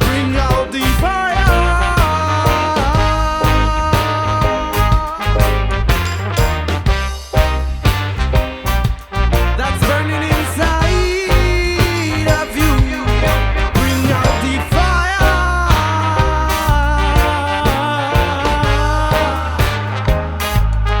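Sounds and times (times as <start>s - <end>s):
dub reggae band playing: 0.0s - 21.0s
heavy bass line: 0.0s - 21.0s
held melody line: 0.0s - 21.0s
sharp drum hits: 2.6s - 9.6s.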